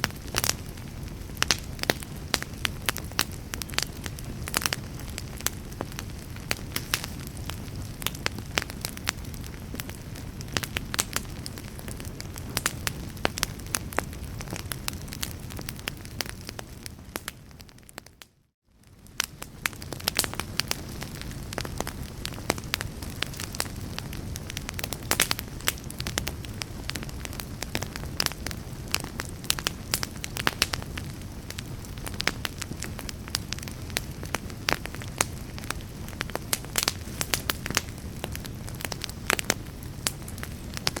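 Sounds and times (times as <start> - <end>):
fire crackling in fireplace: 0.0 - 41.0.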